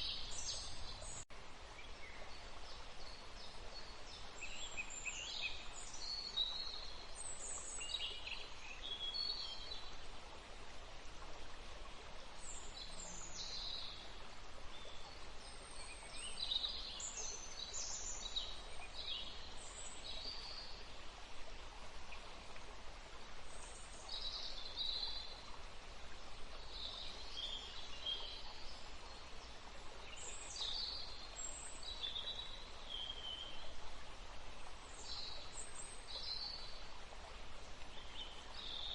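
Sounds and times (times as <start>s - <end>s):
running water hiss: 0.0s - 38.9s
songbirds chirping: 0.0s - 38.9s.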